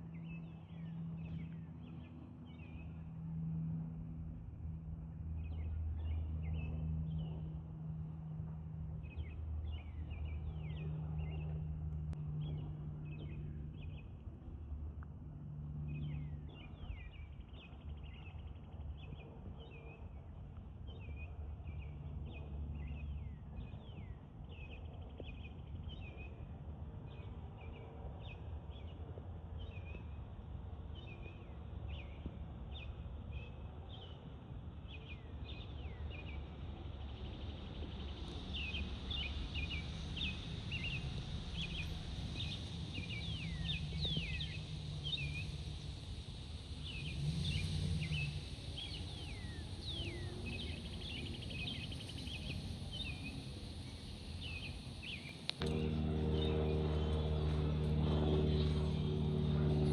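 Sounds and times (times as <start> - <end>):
small birds chirping: 34.9 - 59.9
low rumble: 55.4 - 59.9.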